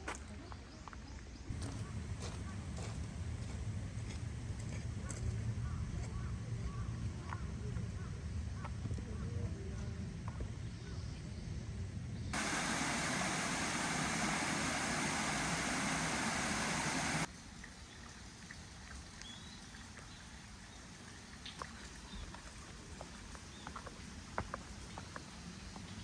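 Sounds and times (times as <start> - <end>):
mountain stream rushing: 12.4 - 17.3.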